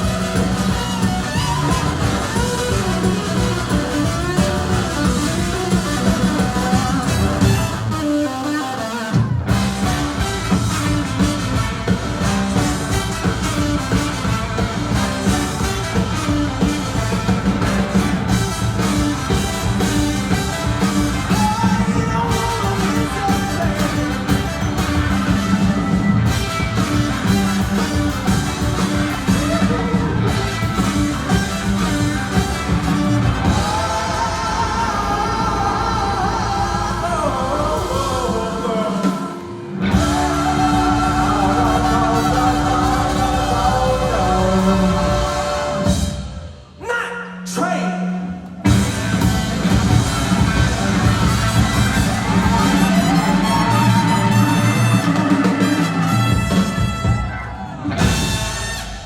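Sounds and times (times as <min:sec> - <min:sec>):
person singing: 0:00.0 - 0:08.9, 0:20.2 - 0:24.8, 0:32.6 - 0:46.1
rock band playing: 0:00.0 - 0:46.8, 0:48.3 - 0:59.0
drums: 0:00.0 - 0:59.0.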